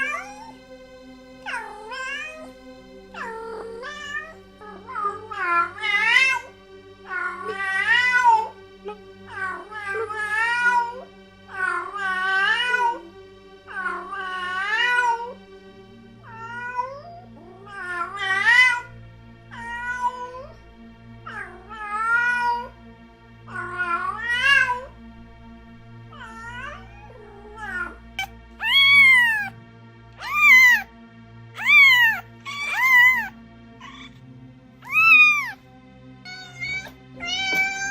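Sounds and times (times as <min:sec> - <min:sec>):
cat meowing: 0:00.0 - 0:00.6, 0:01.5 - 0:02.5, 0:03.2 - 0:06.5, 0:07.1 - 0:08.5, 0:11.6 - 0:13.0, 0:16.2 - 0:18.9, 0:19.6 - 0:20.5, 0:21.3 - 0:22.7, 0:23.6 - 0:24.9, 0:26.1 - 0:29.5, 0:30.2 - 0:30.9, 0:31.6 - 0:34.2, 0:34.8 - 0:35.6, 0:36.3 - 0:37.9
low music drone: 0:00.0 - 0:37.9.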